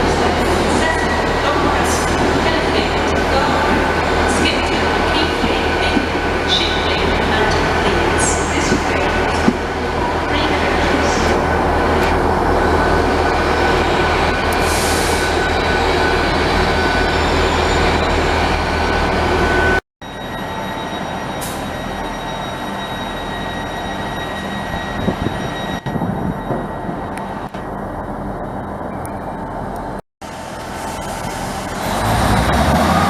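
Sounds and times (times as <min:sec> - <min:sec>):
train humming: 0:00.0 - 0:19.8.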